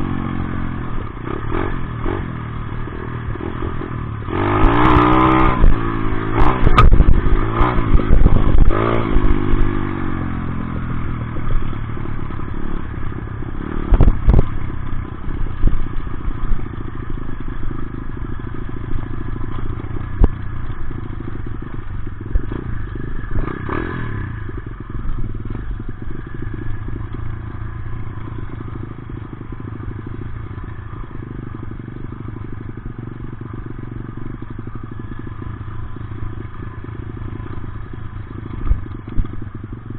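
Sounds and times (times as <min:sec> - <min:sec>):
dirt bike engine revving: 0:00.0 - 0:10.4, 0:20.3 - 0:33.5
engine clattering and knocking: 0:11.2 - 0:39.9.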